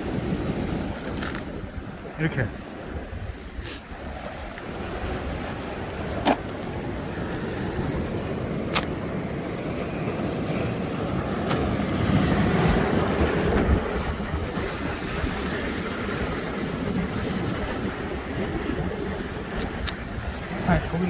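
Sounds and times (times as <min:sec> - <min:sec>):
surf on rocky shore: 0:00.0 - 0:21.0
wind on microphone: 0:00.0 - 0:21.0.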